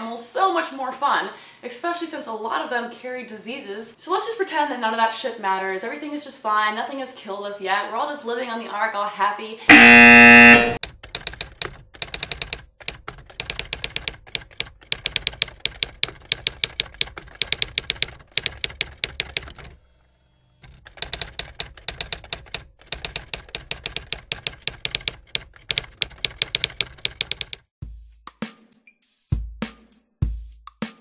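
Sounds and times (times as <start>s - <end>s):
typewriter typing: 10.5s - 19.8s, 20.6s - 27.7s.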